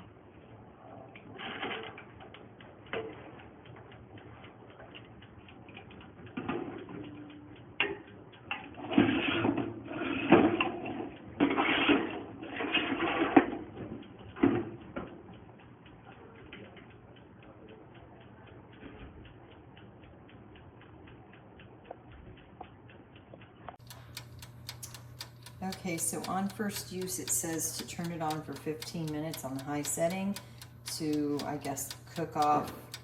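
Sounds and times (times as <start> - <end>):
toaster oven dial timer ticking: 14.0 - 33.0.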